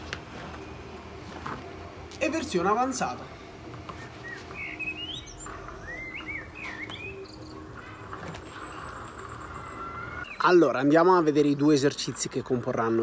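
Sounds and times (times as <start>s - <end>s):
birds chirping: 2.8s - 11.2s.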